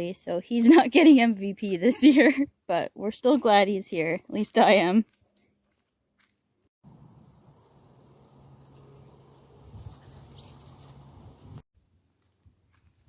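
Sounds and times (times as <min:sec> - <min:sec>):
crickets trilling: 0:05.6 - 0:11.6.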